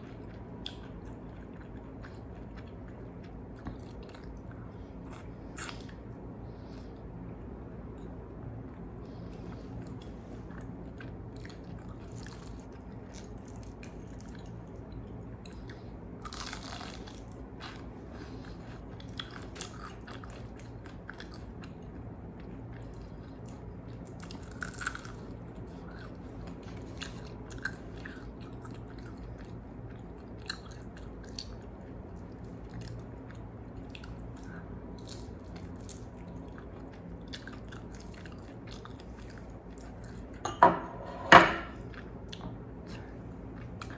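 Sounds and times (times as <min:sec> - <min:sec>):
crunching fried chicken skin: 0:16.2 - 0:17.3.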